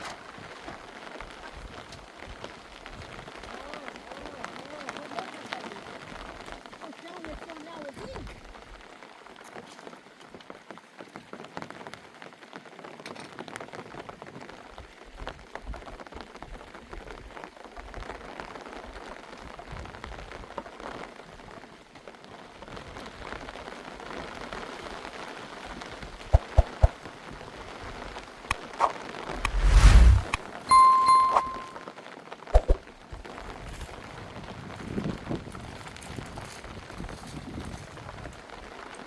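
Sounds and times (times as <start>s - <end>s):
rain pattering: 0.4s - 7.9s.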